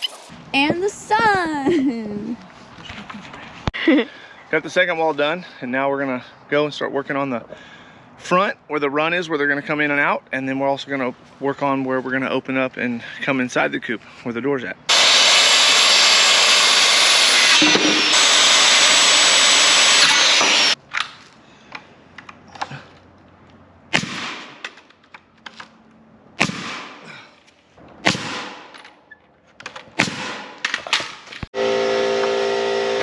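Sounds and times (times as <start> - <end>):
power tool running: 14.9 - 20.8, 31.6 - 33.0.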